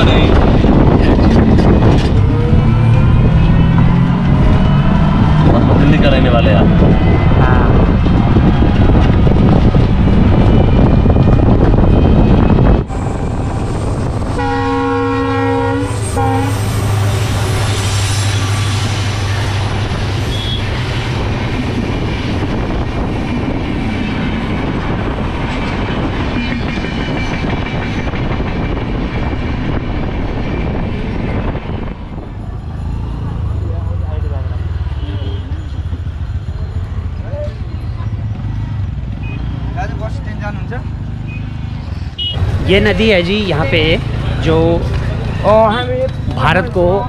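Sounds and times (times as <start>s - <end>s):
train wheels clattering on rails: 0.0s - 2.3s, 17.0s - 32.8s
auto-rickshaw engine: 0.0s - 12.9s, 31.4s - 47.0s
road noise: 0.0s - 47.0s
train horn: 14.3s - 17.0s, 20.2s - 20.7s.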